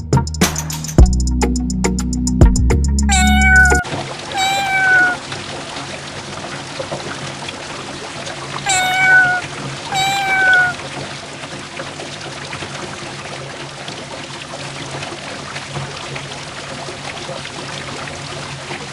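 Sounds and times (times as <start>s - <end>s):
music with drum beat: 0.0s - 1.6s
cat meowing: 3.1s - 5.2s, 8.7s - 10.8s.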